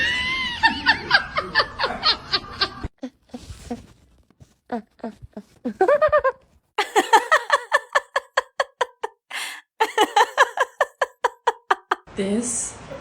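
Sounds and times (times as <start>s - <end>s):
woman laughing hard: 5.7s - 12.1s
breathy gasp: 9.3s - 9.8s.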